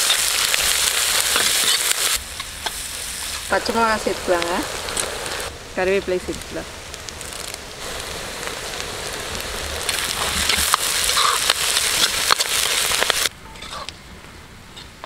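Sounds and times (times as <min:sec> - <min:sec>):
onions sizzling in hot oil: 0:00.0 - 0:13.8
ladle scraping a pan: 0:13.5 - 0:13.9.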